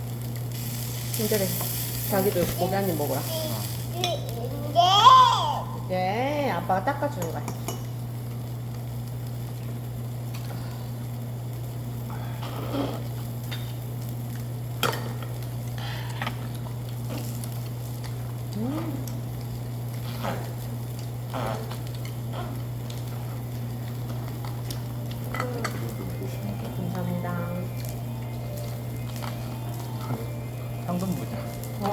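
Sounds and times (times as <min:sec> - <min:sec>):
meat sizzling on a grill: 0:00.0 - 0:31.9
low hum: 0:20.9 - 0:31.9.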